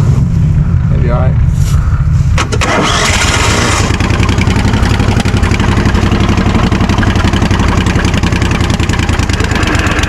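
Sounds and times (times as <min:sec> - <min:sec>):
small engine idling: 0:02.4 - 0:10.0.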